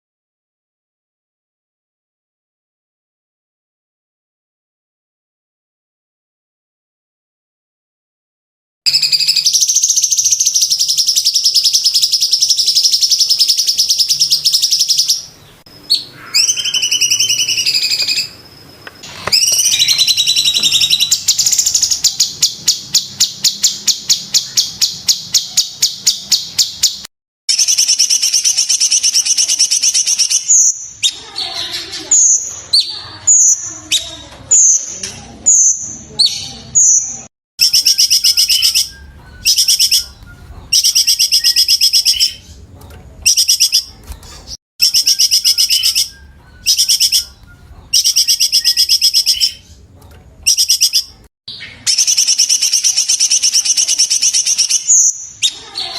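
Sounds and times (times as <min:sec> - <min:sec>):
songbird singing trills: 0:08.9 - 0:55.9.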